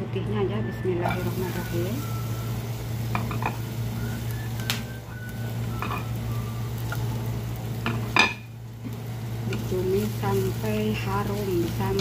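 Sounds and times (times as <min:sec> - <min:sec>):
steady low hum: 0:00.0 - 0:12.0
shallots sizzling in hot oil: 0:00.5 - 0:12.0.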